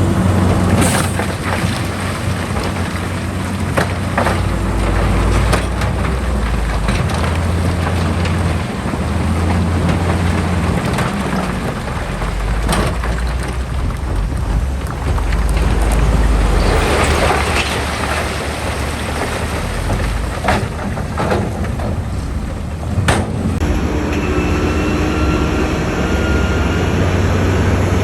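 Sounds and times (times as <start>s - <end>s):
crackling rush: 0.0s - 24.0s
diesel earthmoving machinery droning: 0.0s - 28.0s.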